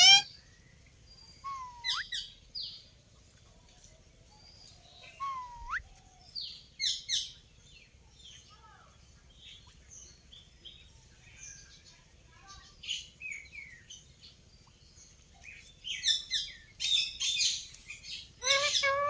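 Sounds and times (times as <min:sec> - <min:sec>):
parrot chirping: 0:00.0 - 0:00.3, 0:01.4 - 0:02.2, 0:18.4 - 0:19.0
parrot whistling: 0:01.4 - 0:02.1, 0:05.2 - 0:05.8.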